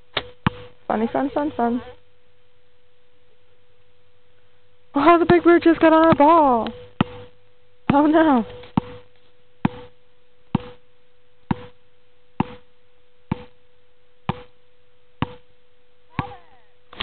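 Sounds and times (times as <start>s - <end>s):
basketball bouncing on hard court: 0.2s - 0.7s, 5.0s - 7.3s, 7.9s - 9.0s, 9.6s - 10.8s, 11.5s - 11.8s, 12.4s - 12.6s, 13.3s - 13.6s, 14.3s - 14.5s, 15.2s - 15.4s, 16.2s - 16.4s.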